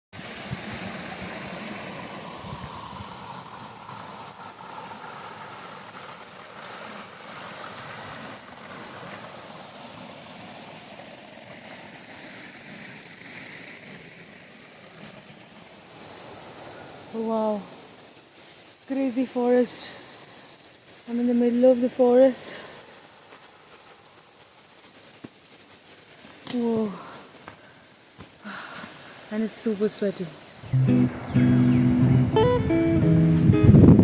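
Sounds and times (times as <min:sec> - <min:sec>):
high-pitched insect drone: 0:15.4 - 0:34.0.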